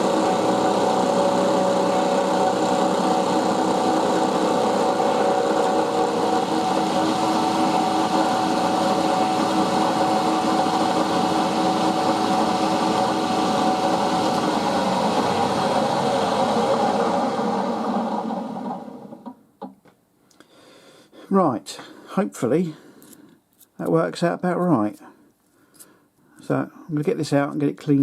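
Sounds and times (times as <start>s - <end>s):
milling machine cutting metal: 0.0s - 19.2s.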